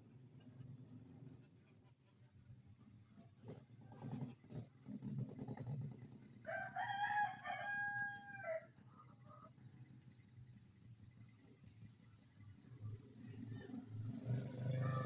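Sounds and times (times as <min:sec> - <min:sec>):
rooster crowing: 0:06.5 - 0:08.8.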